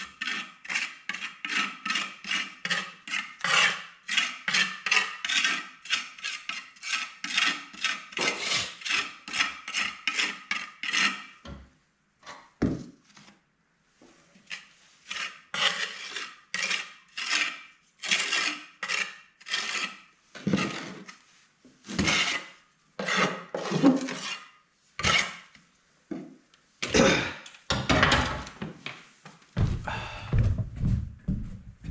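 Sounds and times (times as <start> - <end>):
hand scraping a hard surface: 0.0 - 11.4, 14.0 - 25.6.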